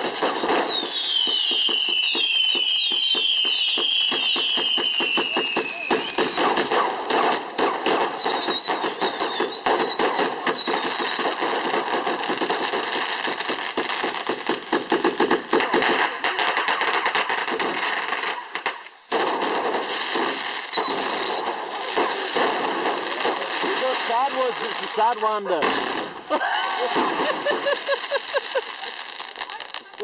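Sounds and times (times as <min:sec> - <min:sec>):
falling firework whistle: 0:00.0 - 0:11.9, 0:17.7 - 0:24.2, 0:25.8 - 0:28.7
wavering firework whistles: 0:00.0 - 0:12.0, 0:17.7 - 0:24.4
fireworks bangs and crackles: 0:00.0 - 0:30.0.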